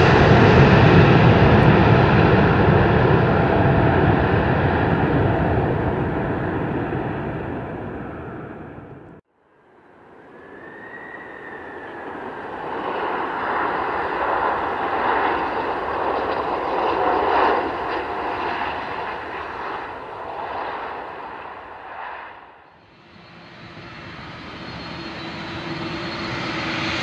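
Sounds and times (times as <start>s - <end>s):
airliner engines passing: 0.0s - 27.0s.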